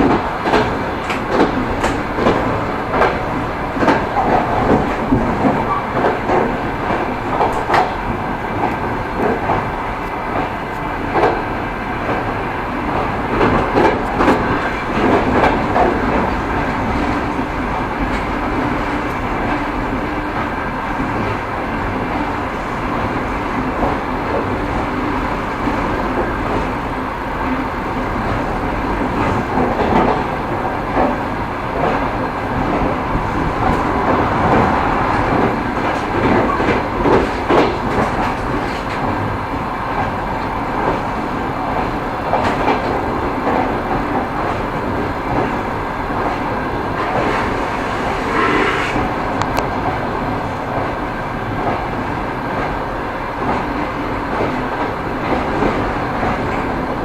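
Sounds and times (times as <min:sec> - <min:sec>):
train wheels clattering over rail joints: 0:00.0 - 0:20.4, 0:28.2 - 0:39.4.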